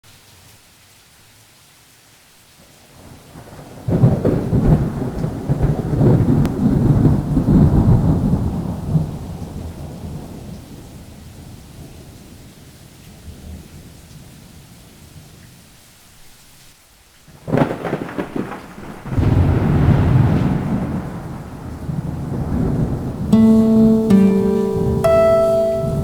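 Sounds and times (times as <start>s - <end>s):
steady rain: 0.1s - 26.0s
thunder rumbling: 17.5s - 23.4s.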